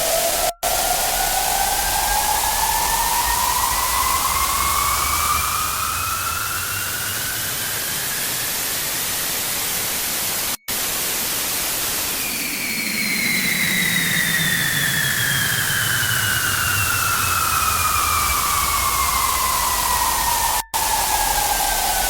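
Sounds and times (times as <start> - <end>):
rising whistle-like tone: 0.0 - 10.7, 11.8 - 22.0
loud harsh static: 0.0 - 12.5, 17.5 - 22.0.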